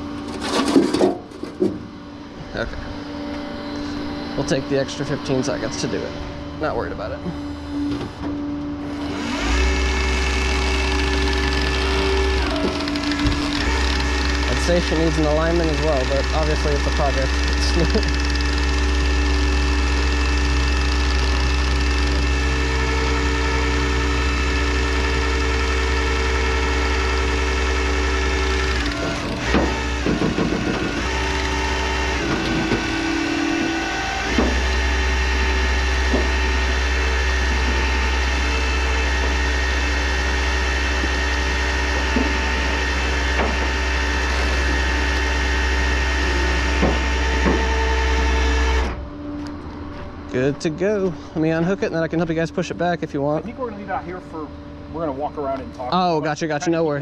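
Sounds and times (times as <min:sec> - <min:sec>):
engine whine: 0:00.0 - 0:57.0
truck engine running: 0:00.0 - 0:57.0
clunks: 0:07.3 - 0:09.4, 0:11.1 - 0:15.5, 0:28.5 - 0:39.4, 0:40.9 - 0:45.4, 0:46.0 - 0:50.1.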